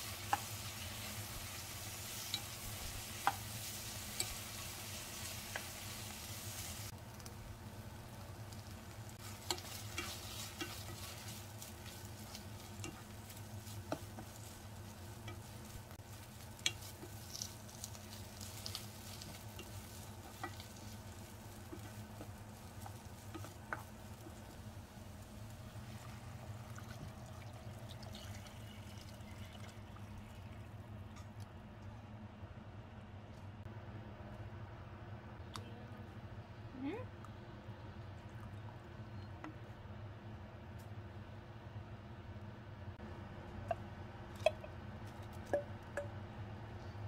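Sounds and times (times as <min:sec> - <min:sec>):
onions sizzling in oil: 0:00.0 - 0:29.3.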